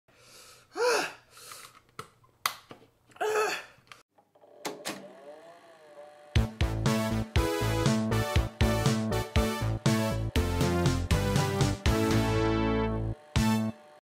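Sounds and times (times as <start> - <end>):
person crying out: 0.8 - 1.2, 3.2 - 3.8
loud intro music: 6.4 - 13.8.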